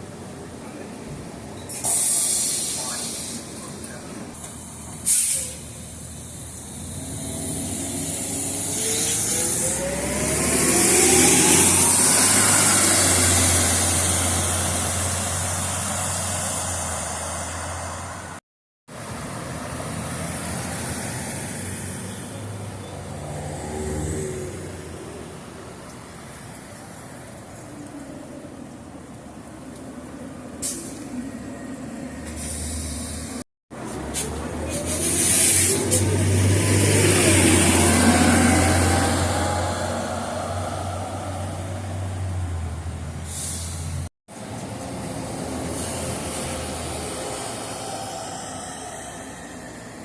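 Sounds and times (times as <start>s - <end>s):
vehicle running noise: 0.0s - 50.0s
air brake hiss: 1.7s - 3.6s, 4.6s - 6.0s, 32.2s - 33.4s, 43.2s - 44.0s, 45.7s - 46.6s.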